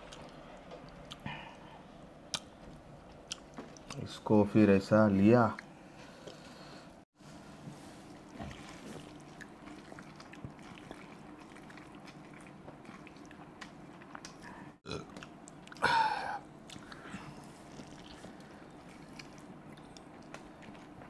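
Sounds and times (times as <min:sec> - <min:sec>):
wet chewing and mouth smacking: 0:00.0 - 0:01.6, 0:02.3 - 0:04.0, 0:08.2 - 0:15.8, 0:16.6 - 0:21.0.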